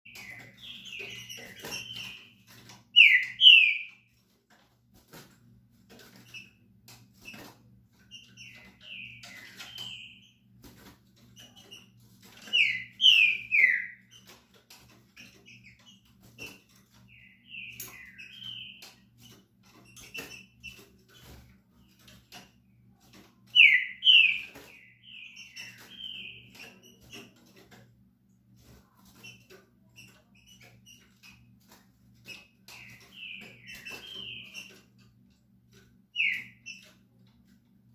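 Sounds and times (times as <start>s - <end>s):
faint clicks and taps: 0.1s - 23.6s, 24.3s - 37.9s
bird singing whistled phrases: 3.0s - 3.9s.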